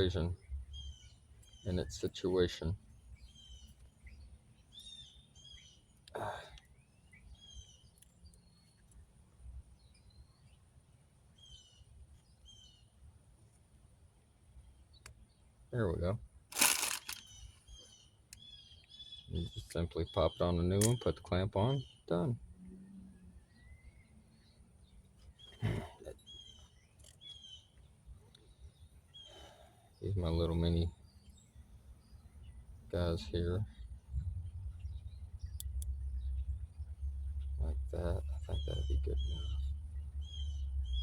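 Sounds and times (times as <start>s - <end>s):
faint bird chirps: 0.0s - 9.1s, 16.8s - 41.0s
faint low rumble: 30.0s - 41.0s.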